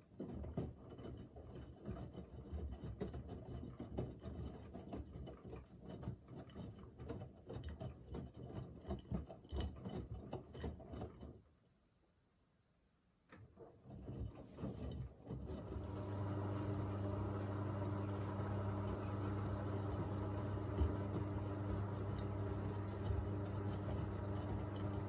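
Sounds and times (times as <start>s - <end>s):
laundry tumbling in water: 13.9s - 25.0s
washing machine drum turning: 15.5s - 25.0s.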